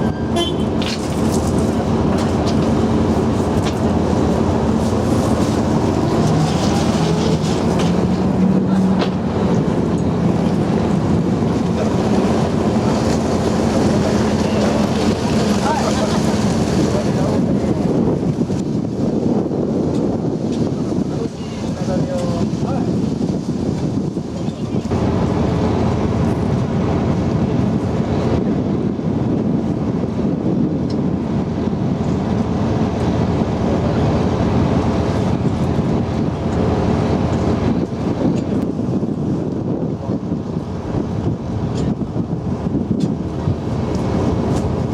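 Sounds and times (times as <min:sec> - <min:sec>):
water rushing past: 0:00.0 - 0:19.2
rushing wind: 0:00.0 - 0:44.9
vehicle engine low drone: 0:00.0 - 0:44.9
water noise: 0:00.0 - 0:44.9.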